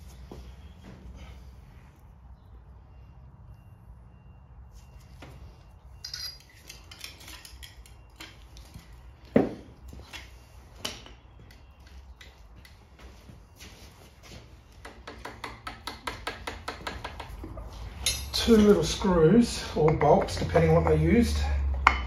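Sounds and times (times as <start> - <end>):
metal tools clinking and knocking: 6.0 - 8.8, 15.5 - 21.0.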